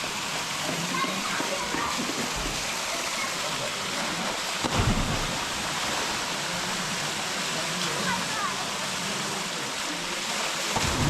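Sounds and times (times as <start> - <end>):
waterfall rushing: 0.0 - 11.0
low thump: 4.6 - 5.4.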